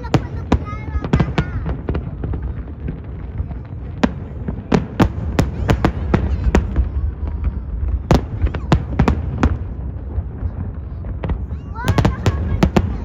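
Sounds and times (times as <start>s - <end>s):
fireworks bangs and pops: 0.0s - 13.0s.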